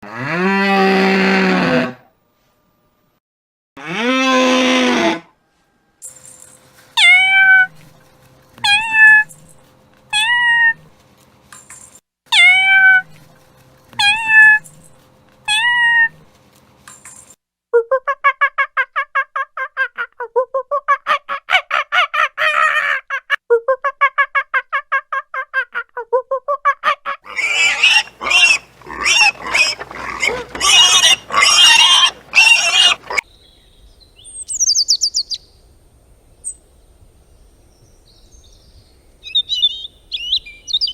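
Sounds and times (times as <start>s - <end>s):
harsh noisy animal calls: 27.2s - 33.3s
fast pulsed animal calls: 27.3s - 33.2s.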